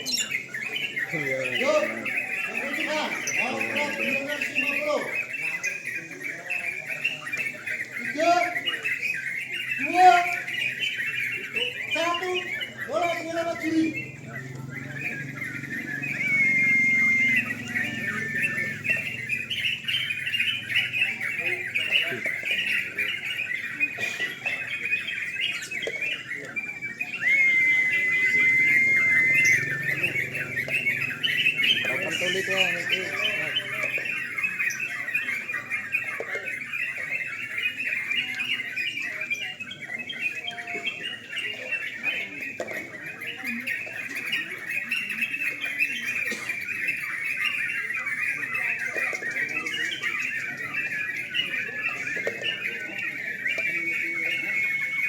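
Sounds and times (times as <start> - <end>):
birds chirping and chattering: 0.0 - 55.0
loud steady whistle: 16.1 - 18.5, 27.2 - 30.0.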